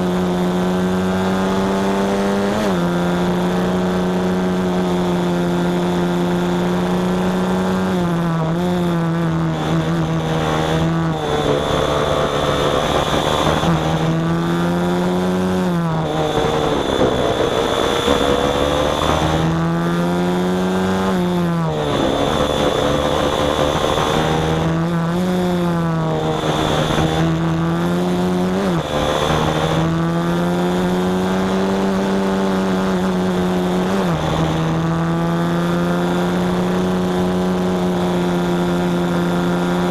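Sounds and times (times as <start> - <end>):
small engine revving: 0.0 - 39.9.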